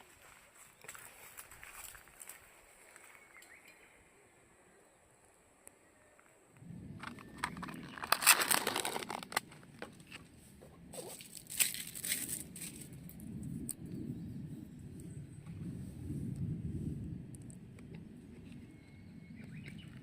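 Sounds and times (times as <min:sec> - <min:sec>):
low rumble: 0:06.6 - 0:10.9, 0:11.8 - 0:20.0
crinkling tearing rustle: 0:07.0 - 0:10.2, 0:10.9 - 0:13.8.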